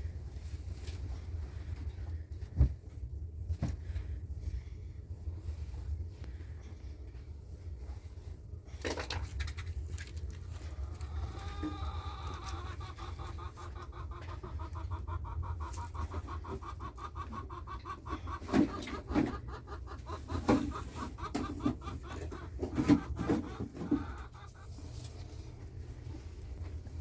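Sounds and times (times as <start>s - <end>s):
low steady rumble: 0.0s - 27.0s
chickens clucking: 10.3s - 27.0s.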